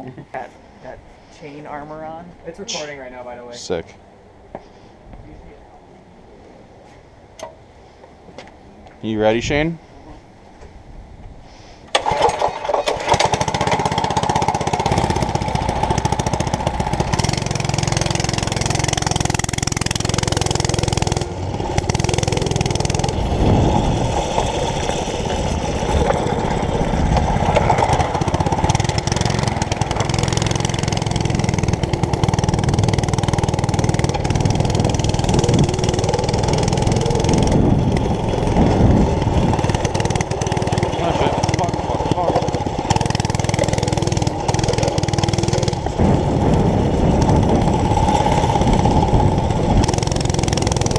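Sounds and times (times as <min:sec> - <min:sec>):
small gas engine running: 0:11.9 - 0:50.9.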